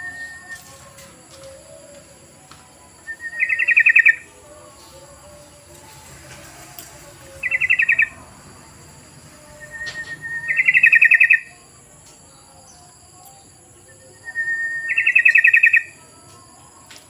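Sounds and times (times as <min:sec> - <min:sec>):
bulbul calling: 0:03.1 - 0:04.6, 0:07.3 - 0:08.2, 0:09.5 - 0:11.6, 0:13.5 - 0:16.0.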